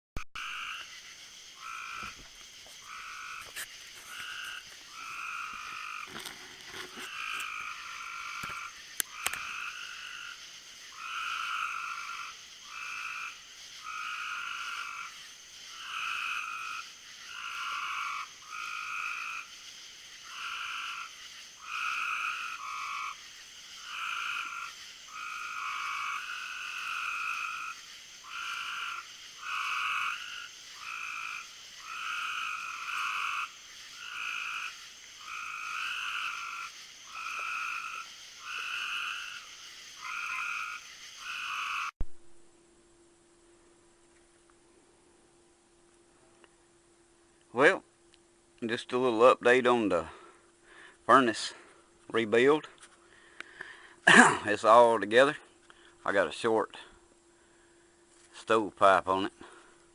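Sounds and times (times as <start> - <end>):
frogs calling in chorus: 0.4 - 41.9.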